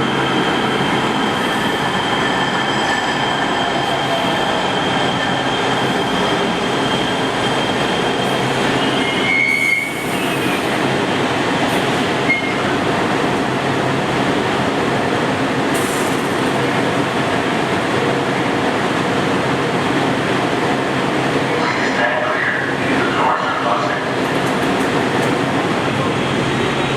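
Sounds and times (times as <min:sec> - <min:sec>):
train rumbling: 0:00.0 - 0:26.9
high wheel squeal: 0:02.2 - 0:10.7.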